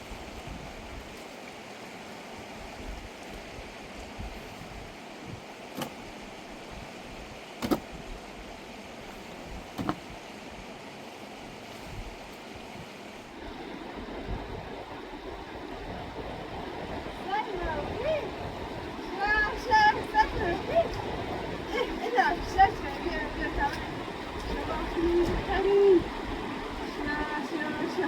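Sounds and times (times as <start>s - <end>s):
river rushing: 0.0s - 28.0s
sharp knocks: 7.6s - 7.8s.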